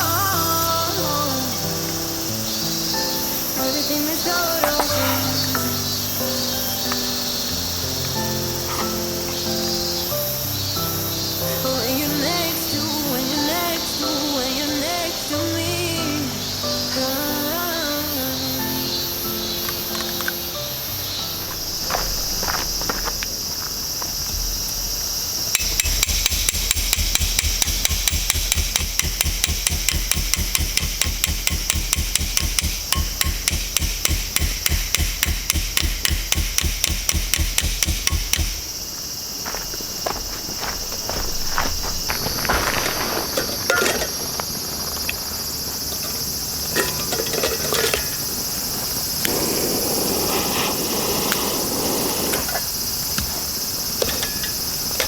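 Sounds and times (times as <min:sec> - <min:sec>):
high drone of insects: 0:00.0 - 0:55.0
metal hammer blows: 0:25.6 - 0:38.8
scattered knocks: 0:25.6 - 0:38.8.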